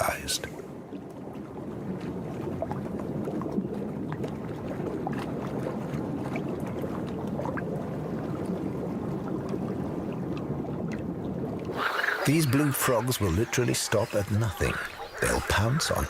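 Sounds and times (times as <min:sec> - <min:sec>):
water churning and splashing: 0:00.0 - 0:16.0
frogs clicking: 0:11.7 - 0:16.0.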